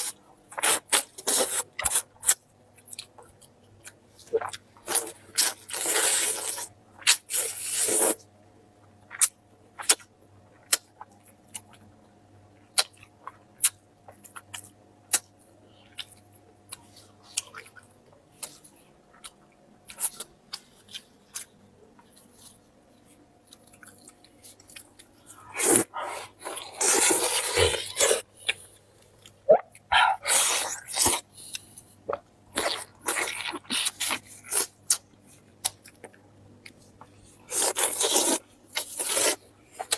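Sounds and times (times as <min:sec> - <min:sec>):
chewing and crunching bones: 0:12.5 - 0:39.9.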